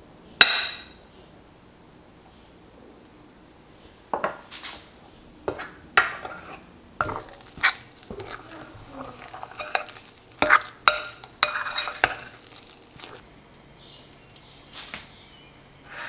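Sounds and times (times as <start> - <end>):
utensil clinking in bowl: 5.5 - 13.2, 14.0 - 15.8.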